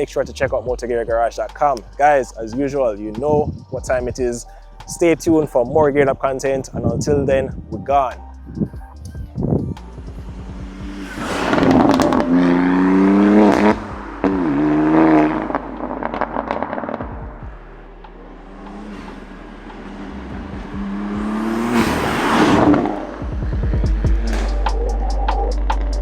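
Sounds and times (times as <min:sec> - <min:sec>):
car engine revving: 0:00.6 - 0:26.0
exhaust crackles and pops: 0:09.3 - 0:26.0.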